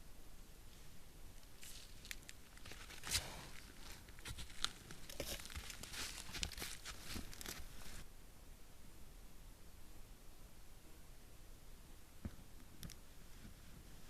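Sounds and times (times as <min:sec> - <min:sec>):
rustling and crackling in snow: 0:01.5 - 0:08.0.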